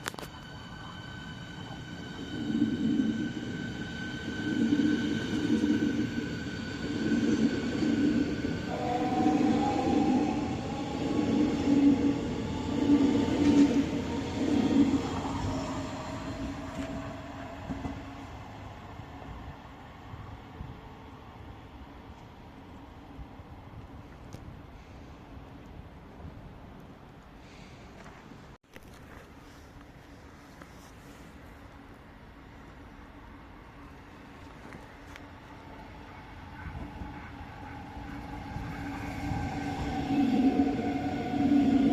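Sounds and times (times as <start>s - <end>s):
electric train running: 0.0s - 18.8s, 35.5s - 41.9s
rising whine: 0.0s - 19.1s.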